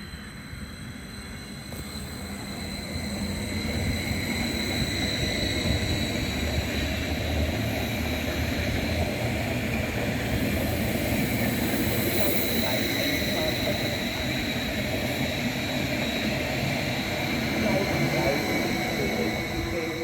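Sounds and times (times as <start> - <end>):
high-pitched whining tones: 0.0 - 20.0
train rumble: 0.0 - 20.0.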